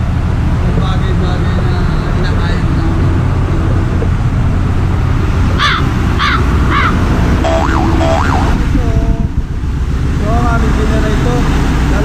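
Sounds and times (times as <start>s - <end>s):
ship engine room drone: 0.0s - 12.0s
caw-like calls: 5.6s - 8.3s
gliding tones: 6.5s - 8.9s.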